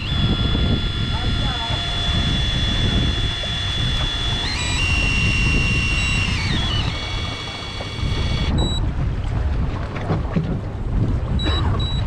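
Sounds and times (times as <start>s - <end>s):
high-pitched whine: 0.0s - 8.8s
boat engine rumble: 0.0s - 12.0s
wind: 0.0s - 12.0s.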